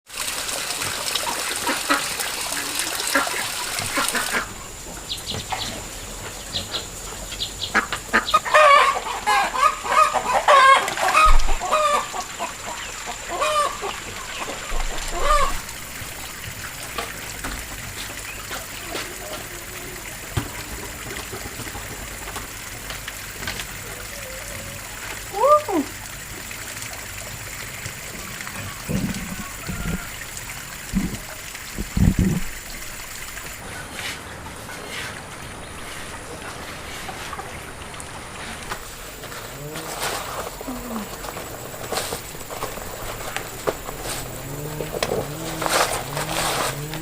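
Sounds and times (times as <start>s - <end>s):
chickens clucking: 0.8s - 16.3s, 28.1s - 35.2s, 38.7s - 47.0s
steady hiss: 11.3s - 47.0s.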